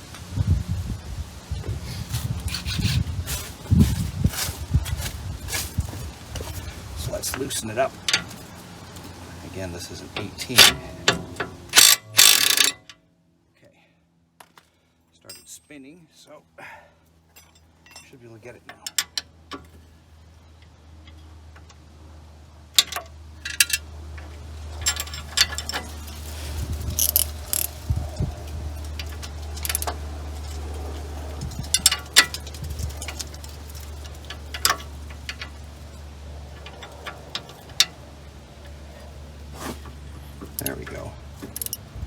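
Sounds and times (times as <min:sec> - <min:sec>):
hand tools clinking on metal: 0:10.0 - 0:13.0, 0:15.2 - 0:15.9, 0:17.3 - 0:19.7, 0:24.8 - 0:41.9.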